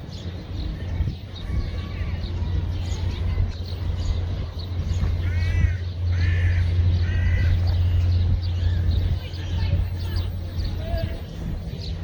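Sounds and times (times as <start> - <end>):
steady low rumble: 0.0 - 12.0
crow cawing: 5.2 - 7.6.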